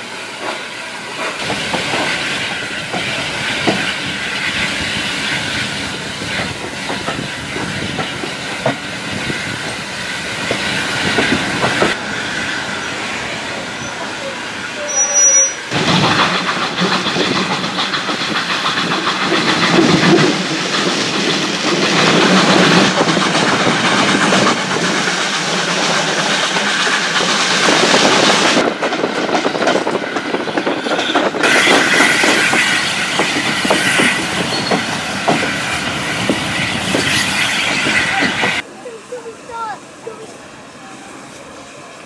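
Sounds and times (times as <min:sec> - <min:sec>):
train wheels rumbling on rails: 0:00.0 - 0:42.0
clickety-clack of rail joints: 0:00.3 - 0:12.6, 0:13.8 - 0:40.4.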